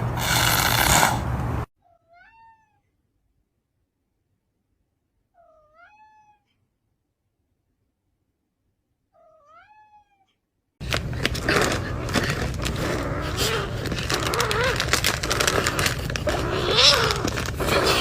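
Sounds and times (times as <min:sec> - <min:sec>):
cat meowing faintly: 0:01.8 - 0:03.0, 0:05.3 - 0:06.6, 0:09.2 - 0:10.4, 0:16.3 - 0:18.0.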